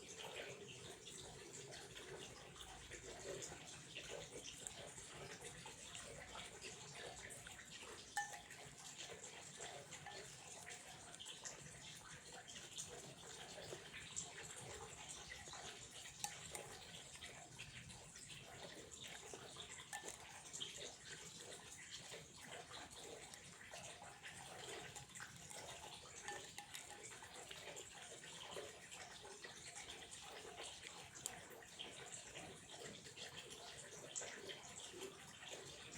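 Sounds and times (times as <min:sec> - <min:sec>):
water splashes and drips: 0:00.0 - 0:35.9
water trickling: 0:00.0 - 0:35.9.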